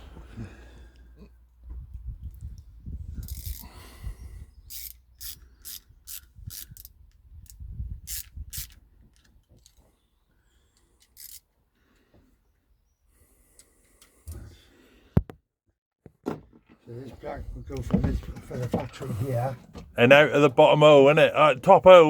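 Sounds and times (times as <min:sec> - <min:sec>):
sharp ratcheting clicks: 0:03.2 - 0:03.7, 0:04.7 - 0:08.8, 0:11.0 - 0:11.4.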